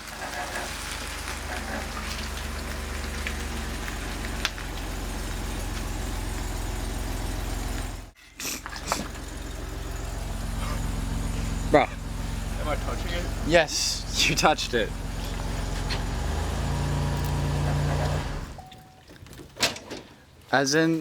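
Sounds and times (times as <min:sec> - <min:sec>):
vehicle engine idling: 0:00.0 - 0:18.7.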